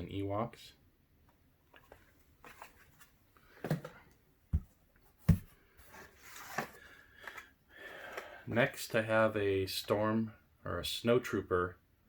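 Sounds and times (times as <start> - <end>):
boxes knocking on hard surface: 3.6 - 5.6.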